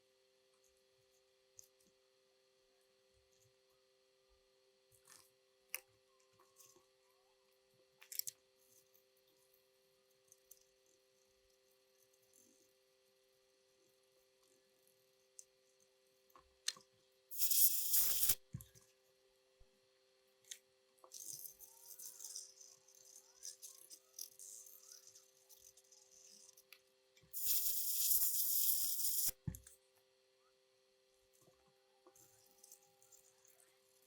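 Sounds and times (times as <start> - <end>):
faint steady hum: 0.0 - 34.0
loud hissing bursts: 17.3 - 18.4, 27.4 - 29.4.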